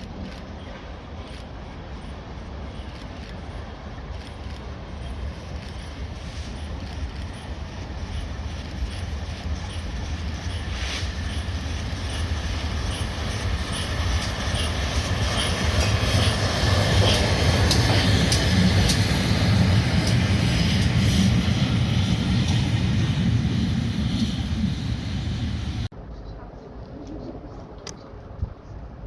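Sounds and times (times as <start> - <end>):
train rumble: 0.0 - 29.0
wheels clicking over rail joints: 2.8 - 23.5.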